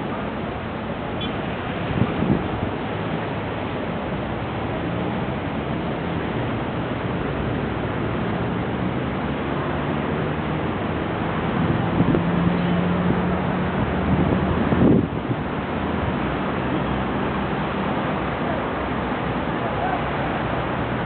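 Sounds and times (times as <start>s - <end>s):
rain: 0.0s - 21.0s
wind: 0.0s - 21.0s.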